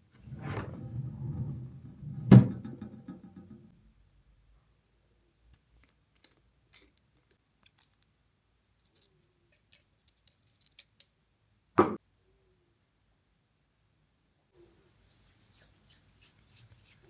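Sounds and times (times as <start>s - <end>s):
thump: 2.2s - 3.7s
small objects clicking and rattling: 8.8s - 11.1s.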